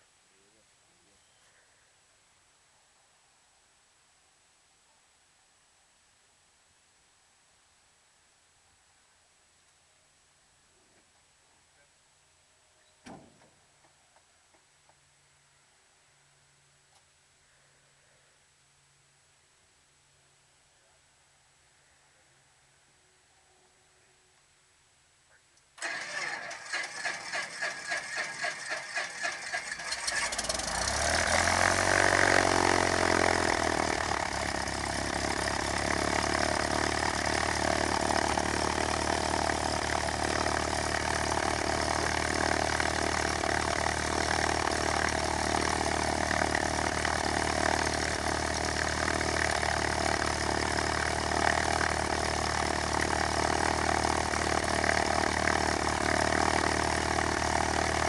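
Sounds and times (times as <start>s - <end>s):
aircraft engine idling: 25.8s - 58.0s
starter cranking engine: 25.8s - 58.0s.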